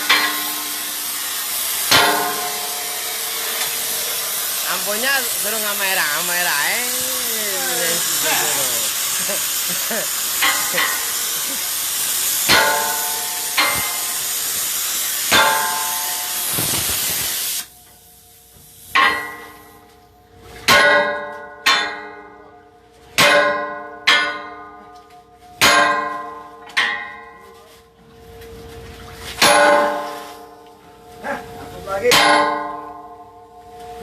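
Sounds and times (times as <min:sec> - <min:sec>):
steady loud hiss: 0:00.0 - 0:19.9.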